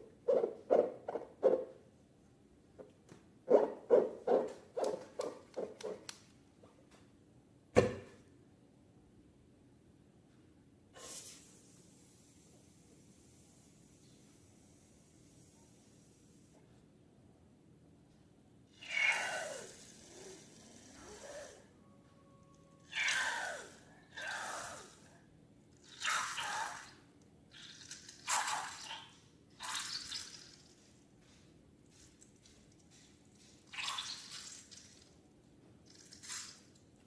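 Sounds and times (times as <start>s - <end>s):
wet slime squelches: 31.9s - 35.1s.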